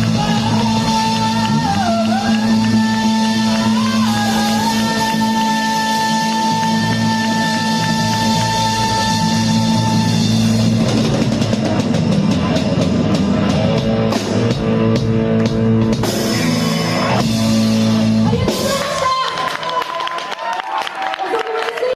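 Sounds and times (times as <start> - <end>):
rock band playing live: 0.0 - 20.0
drum and cymbal hits: 7.7 - 19.2.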